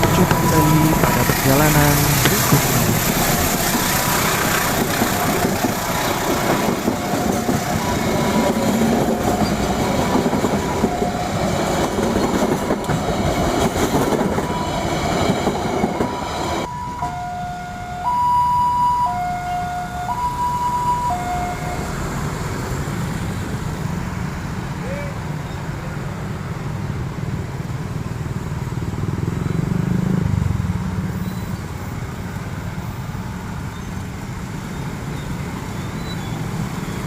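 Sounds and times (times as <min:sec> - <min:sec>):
two-tone crossing alarm: 0:00.0 - 0:03.3, 0:05.1 - 0:12.4, 0:14.1 - 0:22.3
train wheels clattering on rails: 0:00.0 - 0:17.2.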